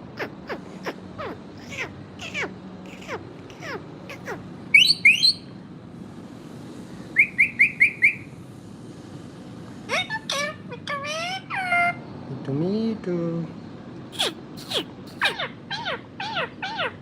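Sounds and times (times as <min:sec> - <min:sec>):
parakeet harsh squawks: 0:00.0 - 0:05.5, 0:14.2 - 0:17.0
parakeet short shrieks: 0:00.1 - 0:05.4, 0:14.2 - 0:17.0
parakeet whistling notes: 0:00.2 - 0:05.5, 0:07.2 - 0:08.3, 0:14.2 - 0:17.0.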